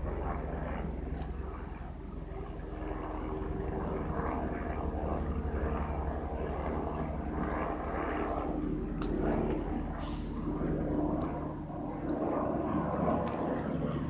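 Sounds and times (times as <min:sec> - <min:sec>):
helicopter rotor drone: 0:00.0 - 0:14.0.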